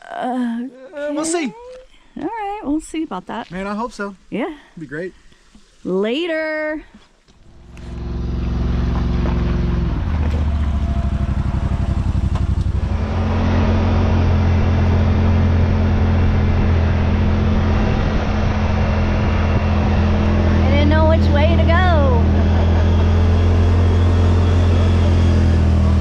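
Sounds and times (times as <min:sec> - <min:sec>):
road and wind noise: 0:07.4 - 0:26.0
utility vehicle engine running: 0:07.4 - 0:26.0.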